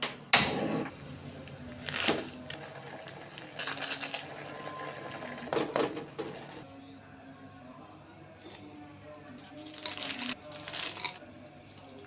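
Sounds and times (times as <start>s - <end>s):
kitchenware clattering and rattling: 1.9s - 6.6s, 9.6s - 11.2s.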